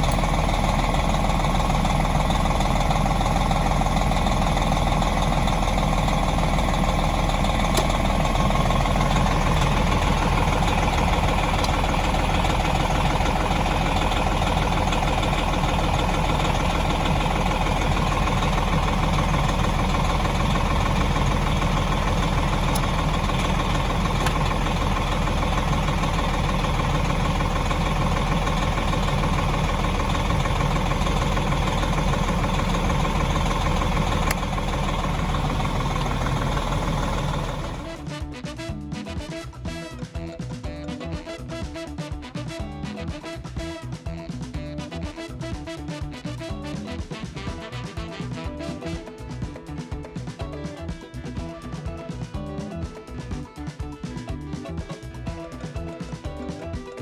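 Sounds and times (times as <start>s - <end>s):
bus engine running: 0.0s - 38.1s.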